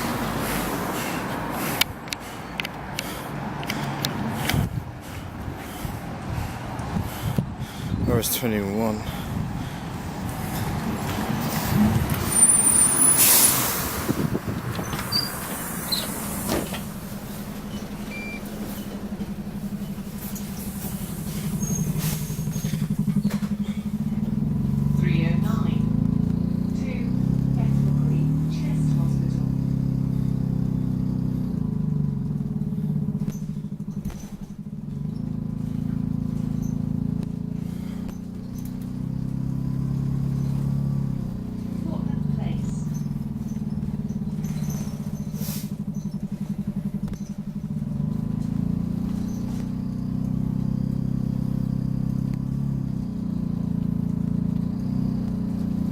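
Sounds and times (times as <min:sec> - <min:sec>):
bus engine hum: 0:00.0 - 0:55.9
air hiss burst: 0:12.8 - 0:14.3, 0:15.1 - 0:17.5, 0:45.4 - 0:45.8
high-pitched squeaks: 0:14.7 - 0:16.8, 0:17.5 - 0:23.5.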